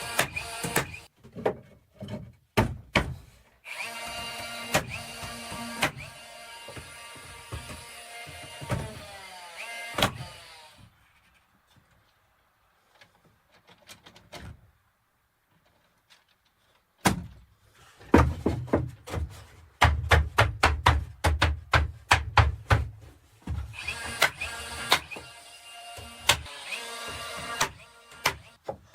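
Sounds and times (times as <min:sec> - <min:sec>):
hammering on wood: 0:18.1 - 0:25.2.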